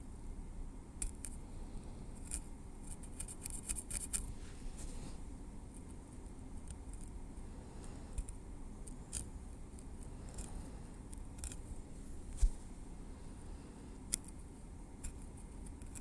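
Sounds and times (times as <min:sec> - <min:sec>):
metal tweezers clicking in hair: 0:08.2 - 0:09.3, 0:10.3 - 0:11.6.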